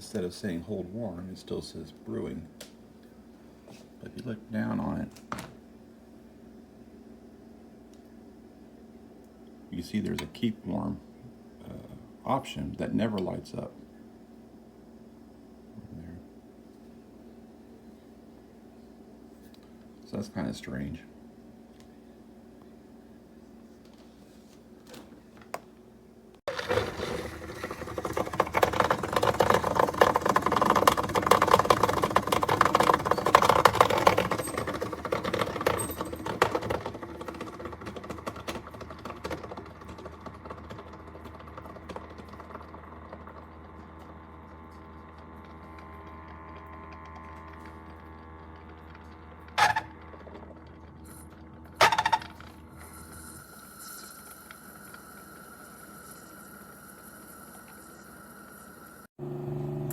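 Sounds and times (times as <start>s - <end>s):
coffee grinder chopping beans: 26.5s - 52.6s.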